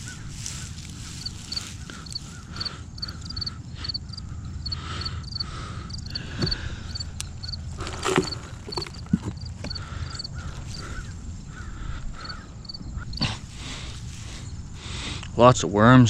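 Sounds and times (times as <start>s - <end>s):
potatoes pulled from straw rustling: 0.0s - 2.6s, 7.7s - 9.4s
low wind rumble: 0.0s - 16.0s.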